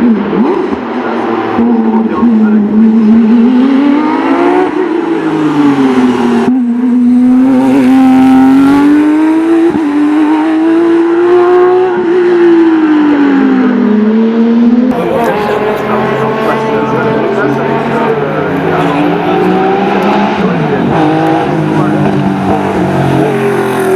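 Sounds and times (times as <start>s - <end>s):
racing car engine running hard: 12.7s - 23.9s.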